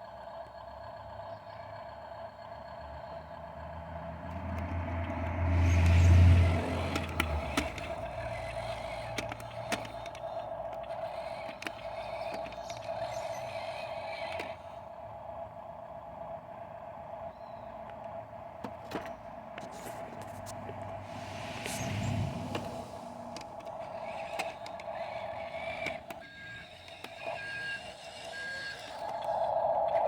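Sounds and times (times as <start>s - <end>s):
toy truck motor whine: 0.0s - 30.0s
sharp clicks: 4.2s - 14.8s, 20.5s - 30.0s
loud low rumble: 20.8s - 23.6s.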